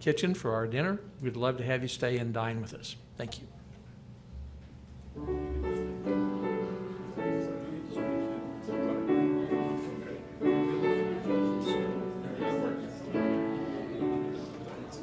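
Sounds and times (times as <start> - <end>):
piano chords: 5.1 - 15.0.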